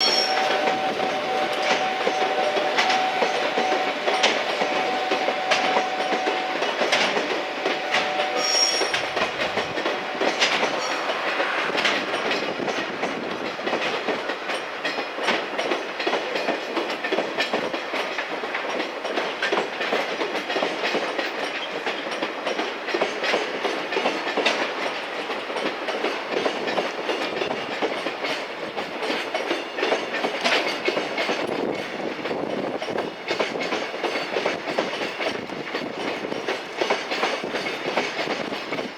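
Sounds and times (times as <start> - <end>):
train wheels clattering: 0.0 - 38.9
high squeal: 7.4 - 12.9.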